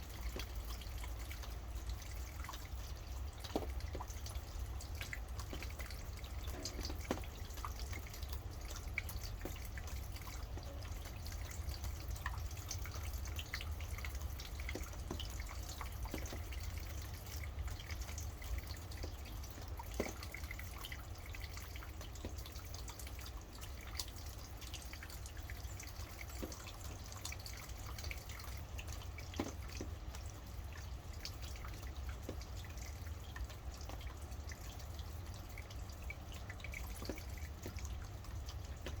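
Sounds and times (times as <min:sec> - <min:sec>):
raindrops ticking: 0:00.0 - 0:39.0.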